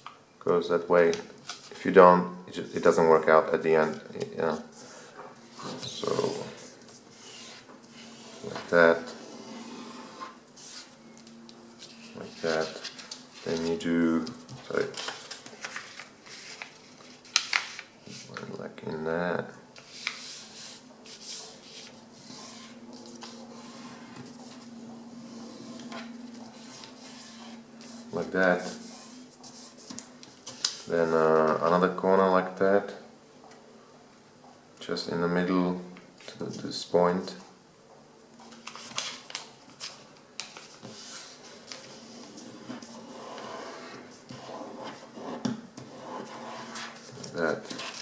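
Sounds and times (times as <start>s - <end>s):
soft paper rubbing: 3.8s - 11.0s, 11.7s - 18.5s, 19.8s - 31.6s, 38.6s - 48.0s
paper rustling and crinkling: 10.6s - 18.5s, 38.4s - 43.0s, 46.7s - 48.0s
paper being folded: 11.7s - 18.5s.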